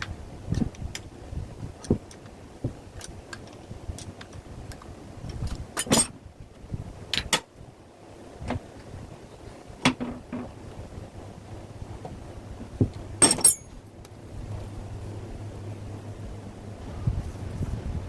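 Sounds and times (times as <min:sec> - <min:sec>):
objects being handled clicks: 0:13.2 - 0:13.8.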